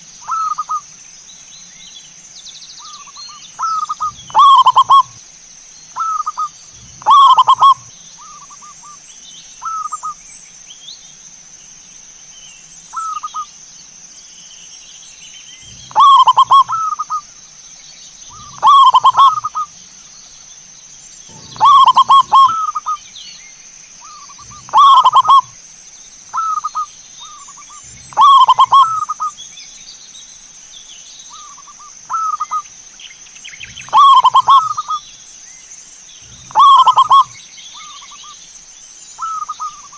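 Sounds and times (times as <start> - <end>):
steady high-pitched whine: 0.0 - 39.9
dove cooing: 3.6 - 5.2, 6.0 - 7.9, 15.6 - 17.2, 18.3 - 19.7, 21.3 - 23.0, 24.0 - 25.6, 26.3 - 29.3, 33.8 - 35.0, 36.3 - 38.0.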